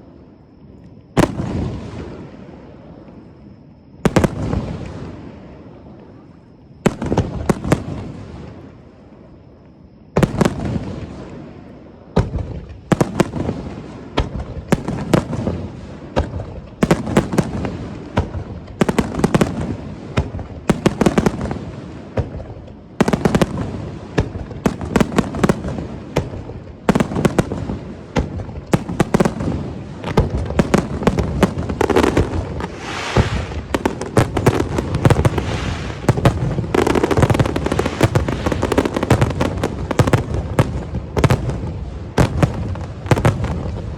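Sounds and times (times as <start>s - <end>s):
fireworks bursting with echoes: 1.2s - 3.1s, 4.0s - 6.2s, 6.8s - 8.8s, 10.1s - 43.9s
fizzing crackle: 32.6s - 33.8s, 35.2s - 36.2s.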